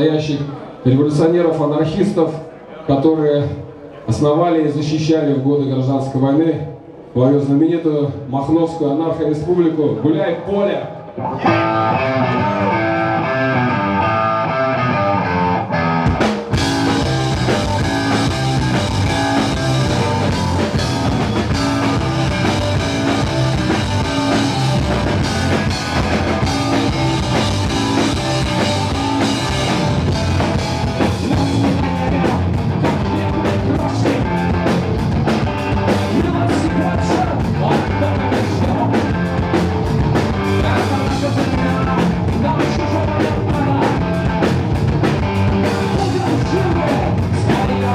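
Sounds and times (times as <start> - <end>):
electric guitar: 11.0 - 47.9
drums: 11.2 - 47.9
live rock band playing: 11.2 - 47.9.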